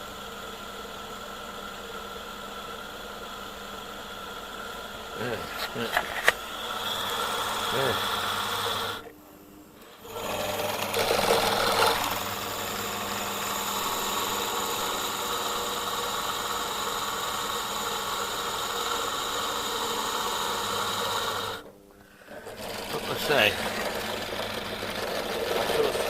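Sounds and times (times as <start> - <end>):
pillar drill drilling steel: 5.2 - 9.1, 10.0 - 21.6, 22.2 - 26.0.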